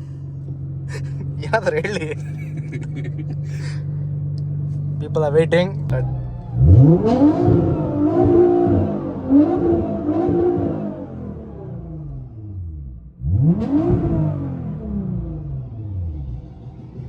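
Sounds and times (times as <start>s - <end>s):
motorcycle engine revving: 5.8s - 17.0s.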